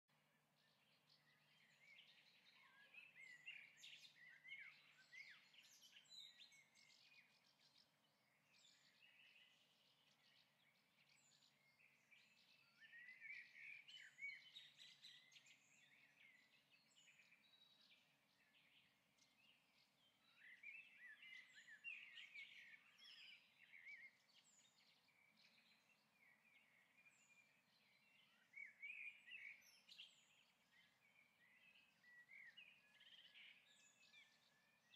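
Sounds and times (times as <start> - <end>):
faint bird-like chirping: 11.1 - 34.9.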